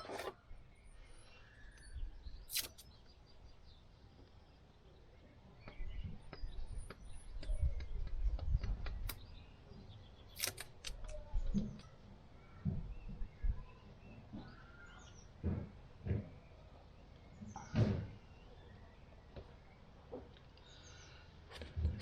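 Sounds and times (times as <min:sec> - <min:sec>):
faint bird chirps: 0:00.0 - 0:15.4.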